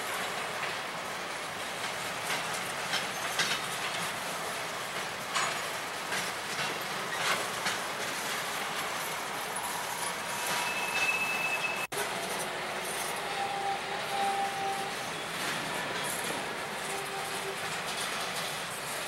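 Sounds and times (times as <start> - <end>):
clanks from train cars: 0.0 - 19.0
freight train wheels rumbling: 0.0 - 19.0
high wheel squeal: 9.6 - 18.2.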